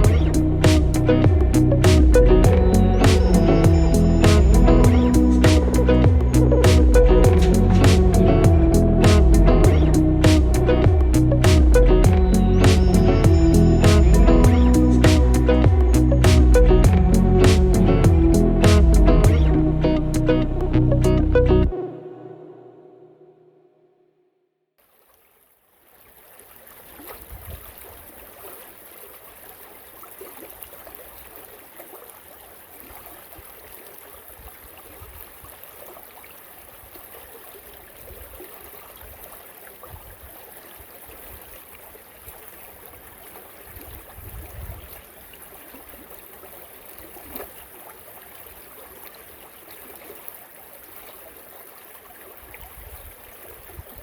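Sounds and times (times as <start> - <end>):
creek water rushing: 0.0 - 21.2
wind rumbling on microphone: 43.7 - 45.0, 52.5 - 54.0.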